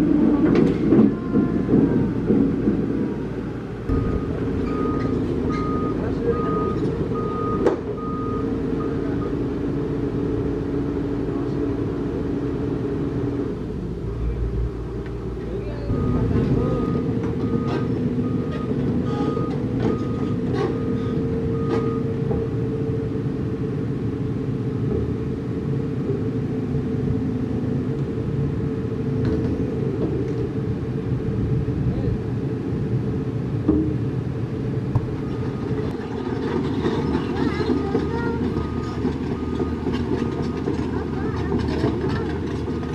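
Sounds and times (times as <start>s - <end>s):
heavy diesel engine running: 0.0s - 42.9s
reversing alarm beeping: 3.9s - 9.4s, 15.9s - 22.3s, 35.0s - 36.0s, 37.6s - 40.6s.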